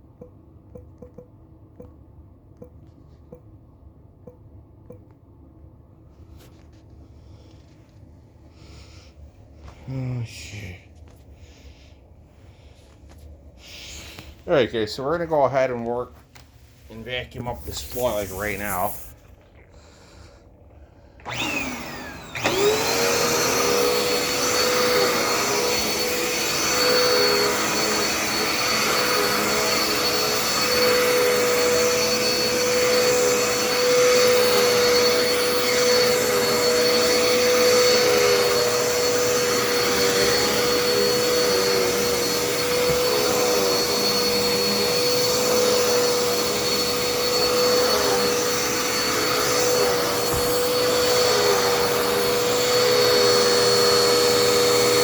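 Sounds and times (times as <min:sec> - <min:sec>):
vacuum cleaner motor whining: 0:17.4 - 0:19.1, 0:21.2 - 0:55.0.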